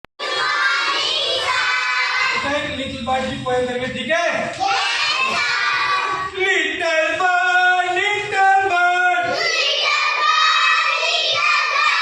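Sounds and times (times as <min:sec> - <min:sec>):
children chanting a rhyme: 0:00.2 - 0:02.7, 0:04.6 - 0:06.4, 0:09.2 - 0:12.0.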